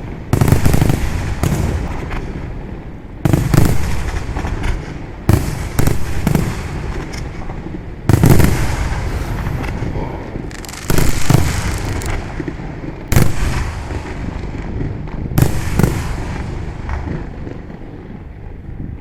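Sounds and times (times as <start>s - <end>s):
firework rumble and crackle: 0.0s - 19.0s
firework shells booming: 3.2s - 17.9s.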